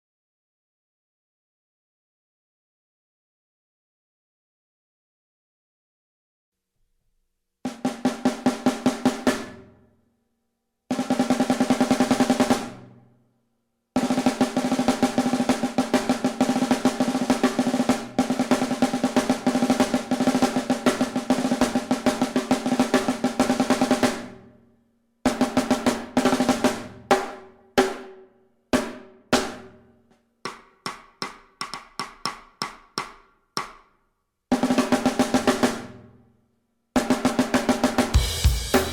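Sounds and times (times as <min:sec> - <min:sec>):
snare drum roll: 0:14.0 - 0:24.4, 0:25.3 - 0:28.1, 0:34.5 - 0:36.0, 0:37.0 - 0:38.9.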